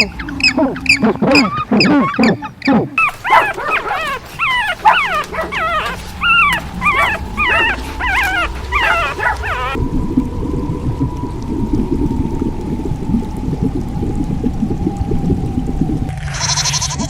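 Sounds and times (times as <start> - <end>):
dogs yipping and whimpering: 0.5 - 9.8.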